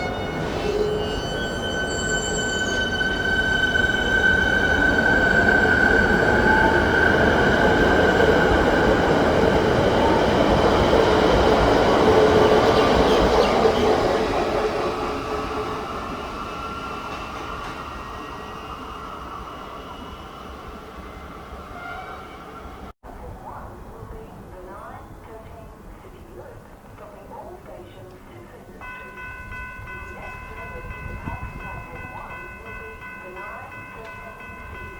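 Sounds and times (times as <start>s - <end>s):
train wheels rushing on rail: 2.8s - 22.0s.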